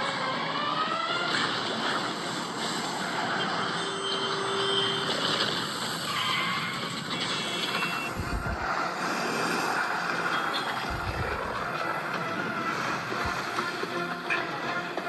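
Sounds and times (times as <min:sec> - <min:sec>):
rushing wind and blowing sand: 0:05.2 - 0:15.0
deep rumbles: 0:08.1 - 0:08.8.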